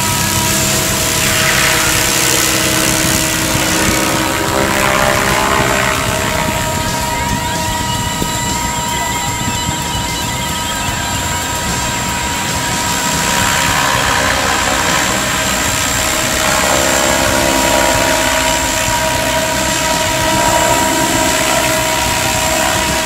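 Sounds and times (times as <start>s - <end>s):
electric motor whine: 0.0s - 23.0s
rotor blades chopping: 0.0s - 23.0s.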